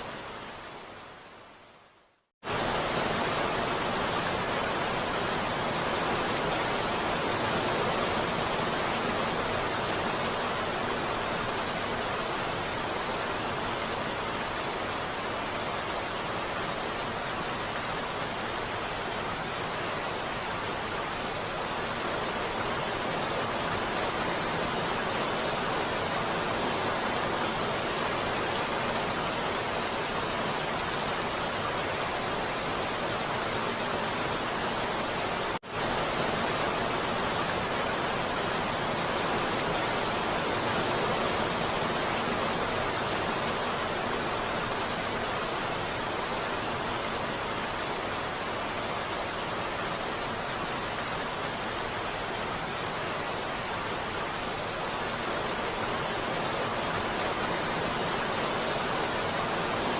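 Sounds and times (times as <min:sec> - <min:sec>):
heavy rain falling: 0:02.4 - 0:59.9.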